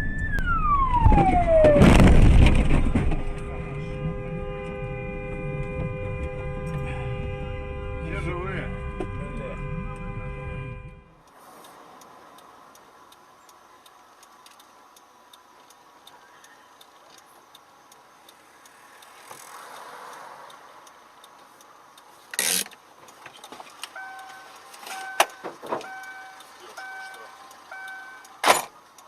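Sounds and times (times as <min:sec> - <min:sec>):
loud bang: 0:00.1 - 0:04.2
faint hiss: 0:11.2 - 0:25.0
light even ticking: 0:11.2 - 0:29.0
repeating electronic beep: 0:24.0 - 0:28.4.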